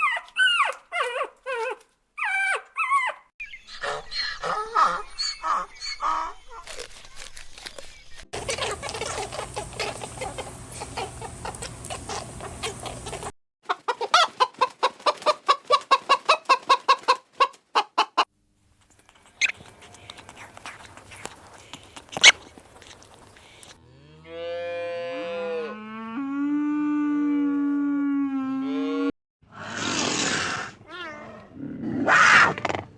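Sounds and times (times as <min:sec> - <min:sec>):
chickens clucking: 0:03.4 - 0:18.3, 0:18.9 - 0:23.8.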